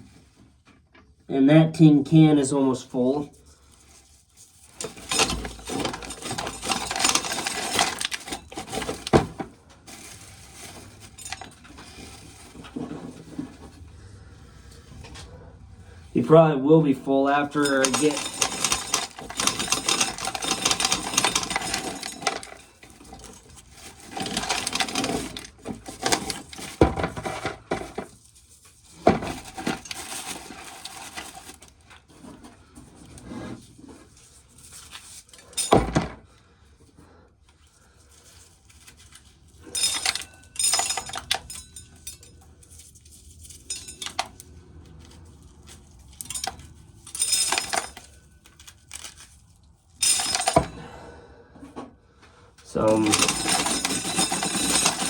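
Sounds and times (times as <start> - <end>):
corn kernels rattling into tin can: 4.6 - 12.7, 17.3 - 28.3, 52.7 - 55.0.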